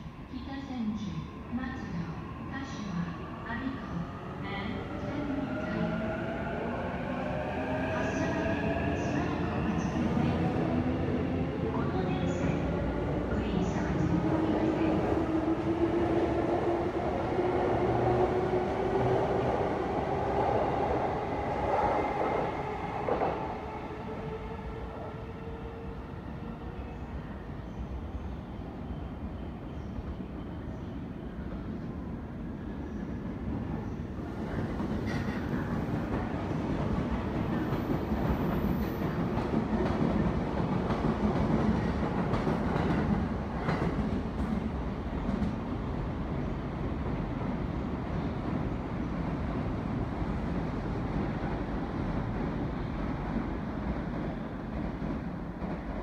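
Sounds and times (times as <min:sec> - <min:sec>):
train wheels rumbling on rail: 0:33.2 - 0:56.0.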